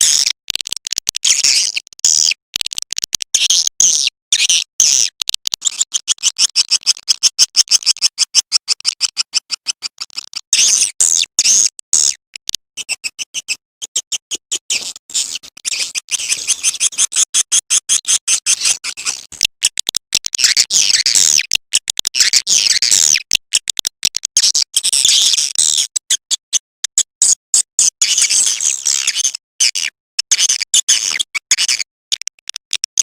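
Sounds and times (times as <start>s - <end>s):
swiftlets twittering and chirping: 3.3s - 12.2s, 12.8s - 19.4s.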